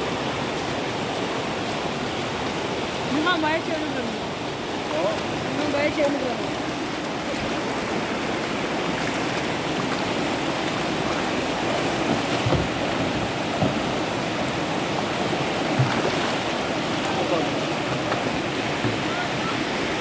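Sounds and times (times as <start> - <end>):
river water rushing: 0.0 - 20.0
low thumps: 12.0 - 14.3.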